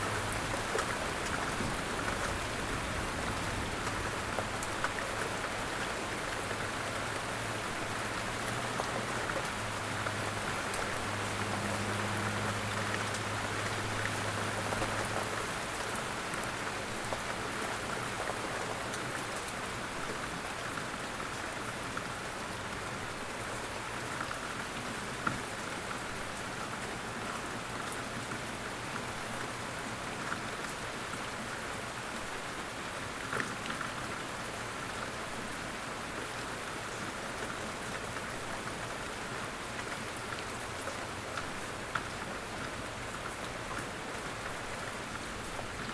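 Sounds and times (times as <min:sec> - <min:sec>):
rain pattering on surfaces: 0:00.0 - 0:45.9.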